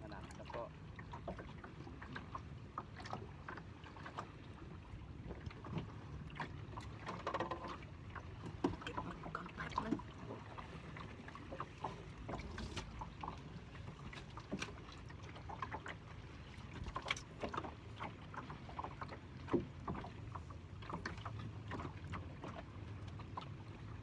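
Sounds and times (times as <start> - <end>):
low steady rumble: 0.0 - 7.0
knocks and taps on boat: 0.0 - 24.0.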